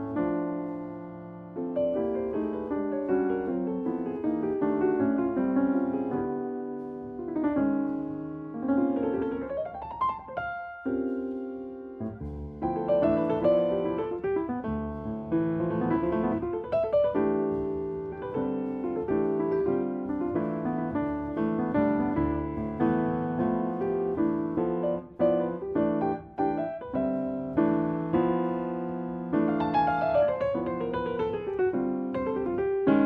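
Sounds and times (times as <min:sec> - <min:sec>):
piano music: 0:00.0 - 0:33.0.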